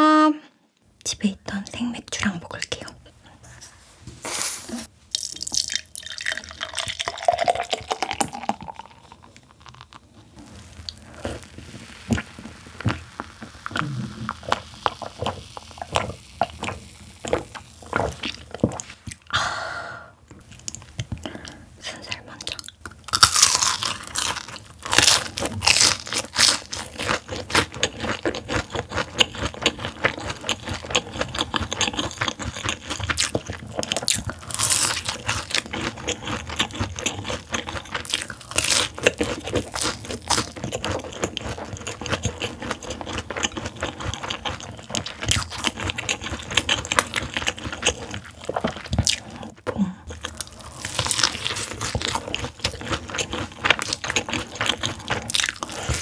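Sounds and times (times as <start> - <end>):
fried chicken crunching bites: 23.0 - 49.5, 50.2 - 56.0.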